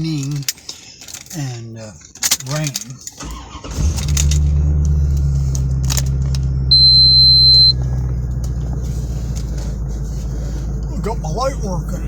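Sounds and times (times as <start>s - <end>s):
car engine idling: 2.1s - 12.0s
high electronic beep: 6.7s - 7.8s.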